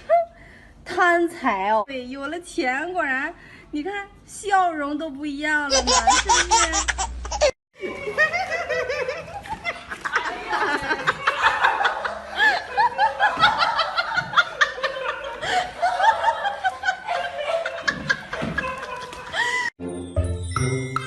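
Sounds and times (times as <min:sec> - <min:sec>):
people laughing: 0:07.8 - 0:19.7.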